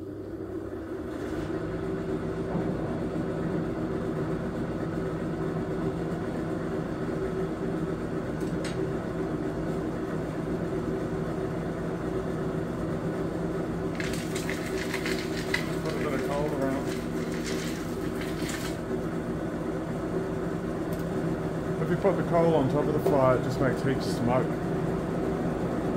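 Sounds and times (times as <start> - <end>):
scratchy rattling noise: 14.0 - 18.8.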